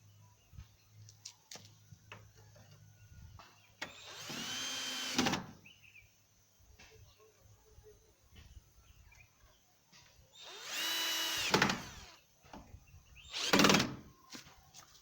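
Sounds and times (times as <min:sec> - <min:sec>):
electric drill whining: 0:03.8 - 0:05.4, 0:10.4 - 0:12.2, 0:13.2 - 0:14.0.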